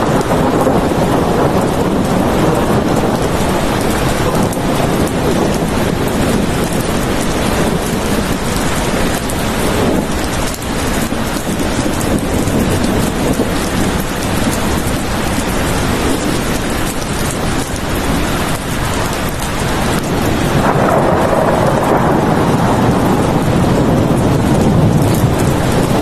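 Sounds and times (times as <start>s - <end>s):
low rumble of thunder: 0.0s - 26.0s
steady rain falling: 0.0s - 26.0s.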